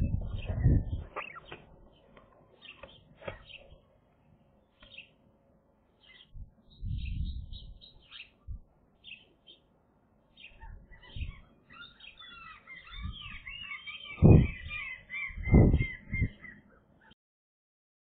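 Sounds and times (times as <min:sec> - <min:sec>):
dull low thumps: 0:00.0 - 0:01.2, 0:14.2 - 0:14.8, 0:15.4 - 0:16.4
birds chirping: 0:00.0 - 0:17.2.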